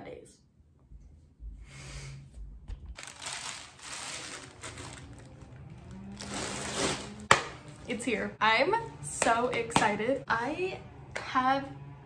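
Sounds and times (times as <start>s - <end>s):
low handling rumble: 2.4s - 12.0s
plastic bag crinkling: 3.0s - 7.2s.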